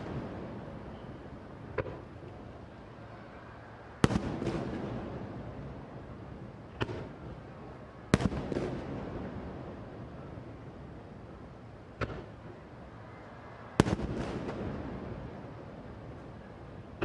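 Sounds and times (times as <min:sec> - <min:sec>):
fireworks booming: 0:00.0 - 0:02.1, 0:04.0 - 0:06.0, 0:06.7 - 0:07.4, 0:08.1 - 0:10.2, 0:13.8 - 0:15.8
fireworks cracks: 0:04.0 - 0:05.4, 0:13.8 - 0:15.3.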